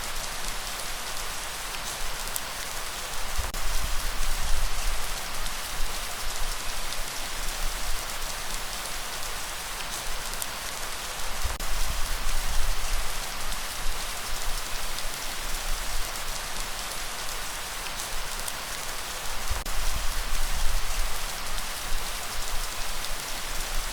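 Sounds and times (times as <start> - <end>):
heavy rainfall hiss: 0.0 - 23.9.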